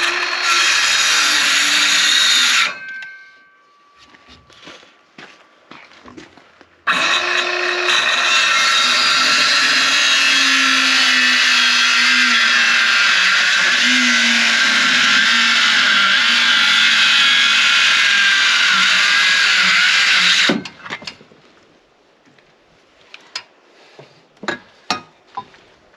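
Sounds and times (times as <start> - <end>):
power saw cutting wood: 0.0 - 3.0, 6.9 - 20.7.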